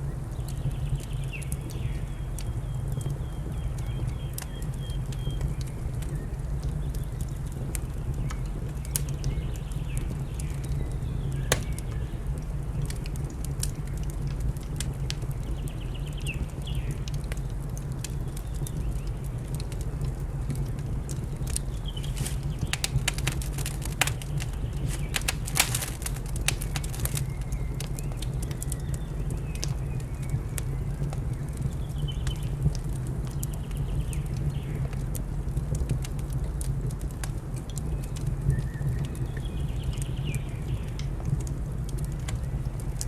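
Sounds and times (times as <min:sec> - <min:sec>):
wood fire crackling and popping: 0:00.3 - 0:43.0.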